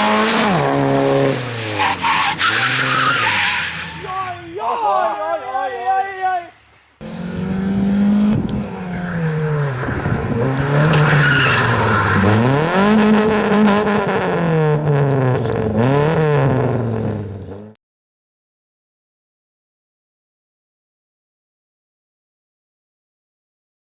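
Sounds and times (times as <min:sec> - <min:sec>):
car engine revving: 0:00.0 - 0:04.3, 0:07.0 - 0:17.8
tyres skidding and squealing: 0:00.0 - 0:06.5, 0:08.5 - 0:14.7.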